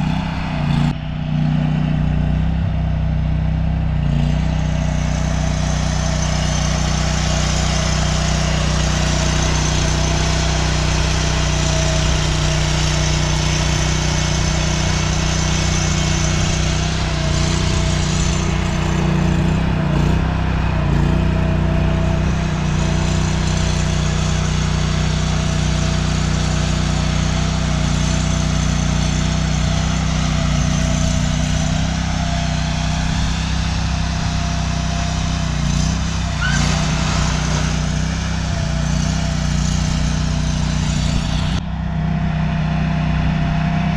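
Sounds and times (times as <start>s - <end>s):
engine humming: 0.0s - 43.9s.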